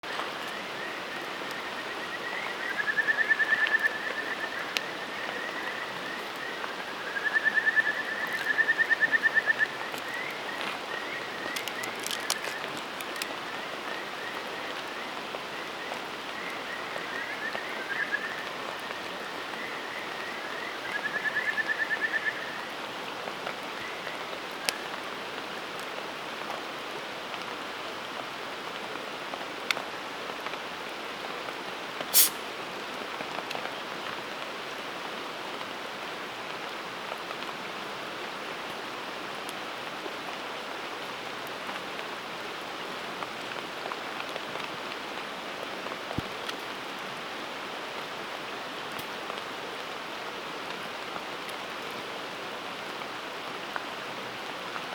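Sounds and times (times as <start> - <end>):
sharp crackles: 11.4 - 13.4, 32.1 - 32.5.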